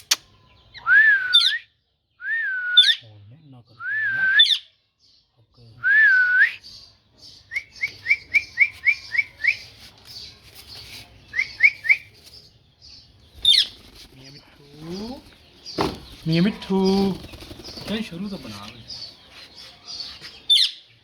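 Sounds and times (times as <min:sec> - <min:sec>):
parrot chirping: 0:19.3 - 0:20.8.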